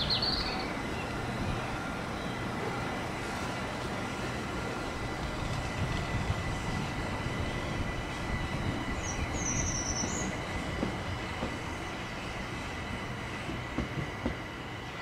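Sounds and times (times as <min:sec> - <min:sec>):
electric train rumble: 0:00.0 - 0:15.0
high wavering squeal: 0:07.1 - 0:10.6.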